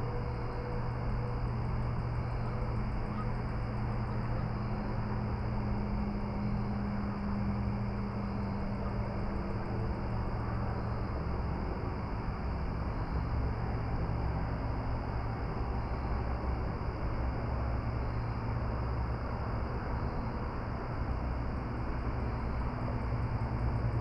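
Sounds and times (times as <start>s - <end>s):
constant low hum: 0.0s - 24.0s.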